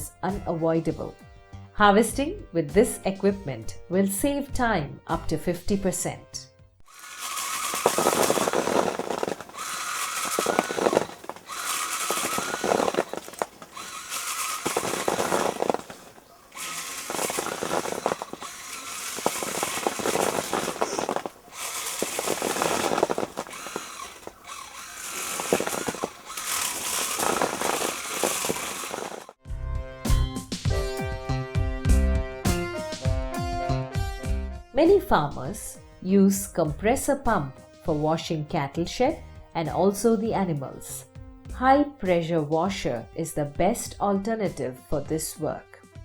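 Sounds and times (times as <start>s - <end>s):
small electric motor running: 6.9s - 29.4s
vibrating rods clicking: 6.9s - 29.4s.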